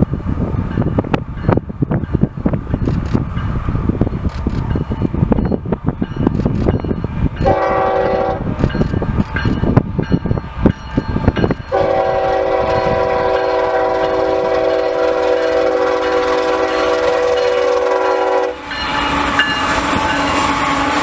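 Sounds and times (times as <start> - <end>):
wind buffeting microphone: 0.0 - 21.0
locomotive air horn blasts: 7.4 - 8.6, 11.7 - 21.0.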